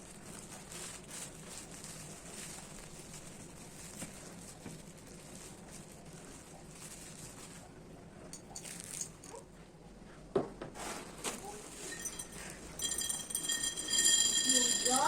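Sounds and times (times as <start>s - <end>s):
soft crinkling: 0.0s - 9.6s
kitchen items clicking and knocking: 11.7s - 15.0s.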